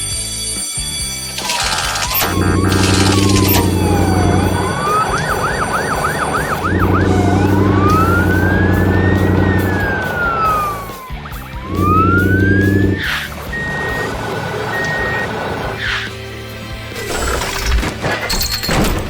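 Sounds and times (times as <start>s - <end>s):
cartoon siren wailing: 2.2s - 15.8s
low buzzing drone: 2.2s - 15.8s.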